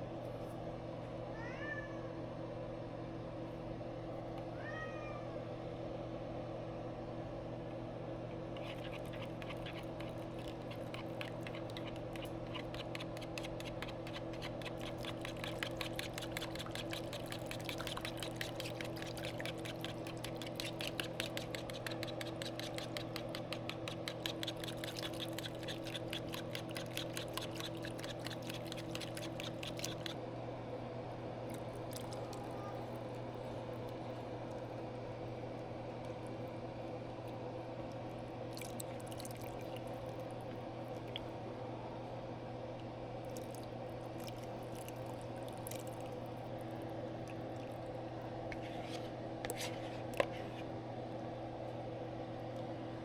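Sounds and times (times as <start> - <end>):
fast small clicks: 8.6 - 30.2.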